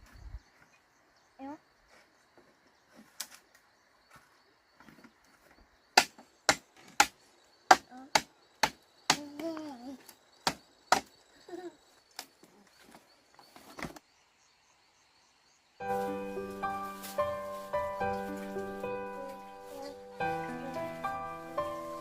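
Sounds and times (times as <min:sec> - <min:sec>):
blade chopping wood: 0:06.0 - 0:09.5.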